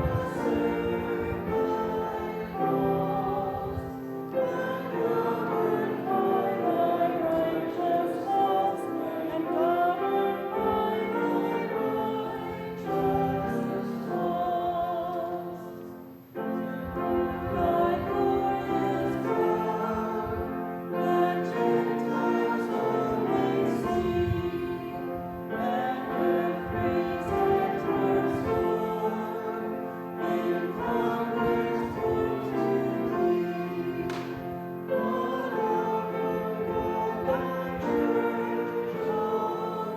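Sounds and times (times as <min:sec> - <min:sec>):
congregation singing a hymn: 0:00.0 - 0:39.9
piano accompaniment: 0:00.0 - 0:39.9.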